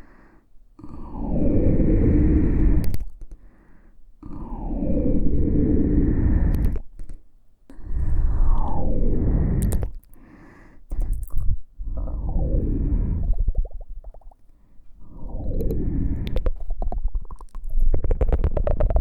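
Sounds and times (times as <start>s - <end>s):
rubbing on microphone: 15.4s - 19.0s.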